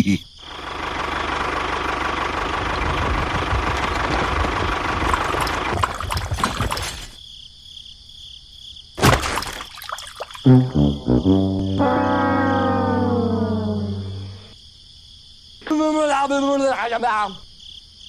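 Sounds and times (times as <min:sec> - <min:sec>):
engine running: 0:00.4 - 0:07.0, 0:11.8 - 0:14.5.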